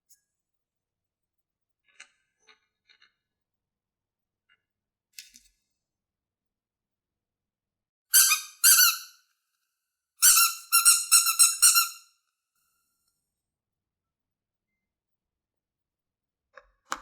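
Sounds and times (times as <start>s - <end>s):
high-pitched squeaks: 8.2s - 9.1s, 10.2s - 12.0s.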